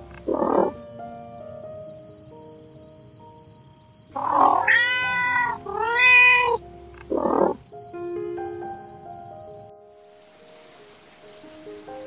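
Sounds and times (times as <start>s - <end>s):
cat meowing: 0.3s - 0.7s, 4.2s - 7.6s.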